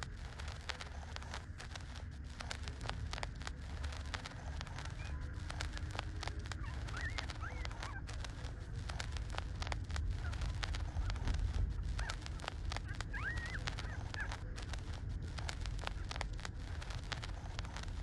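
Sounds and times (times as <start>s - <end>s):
low rumble: 0.0s - 18.0s
rapid sucking clicks: 0.0s - 18.0s
puppies squeaking: 6.6s - 8.0s, 13.2s - 13.6s.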